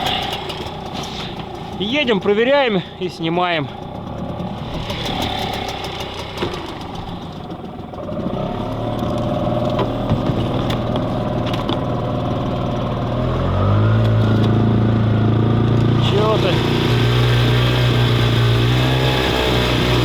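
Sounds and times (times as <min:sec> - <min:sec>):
outboard motor running: 0:00.0 - 0:20.0.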